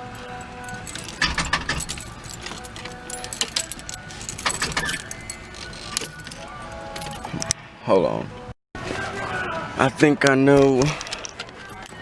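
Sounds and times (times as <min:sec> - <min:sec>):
key ring jangling: 0:00.0 - 0:07.6.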